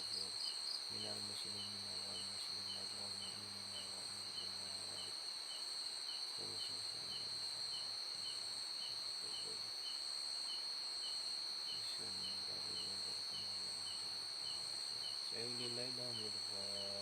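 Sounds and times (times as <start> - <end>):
faint low murmur: 0.0 - 5.2, 6.3 - 9.9, 11.7 - 17.0
crickets trilling: 0.0 - 17.0
short insect chirp: 0.0 - 17.0.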